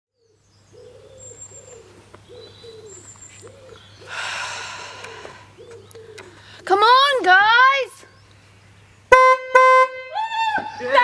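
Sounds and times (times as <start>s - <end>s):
small birds chirping: 0.2s - 9.1s
pigeon cooing: 0.7s - 6.5s.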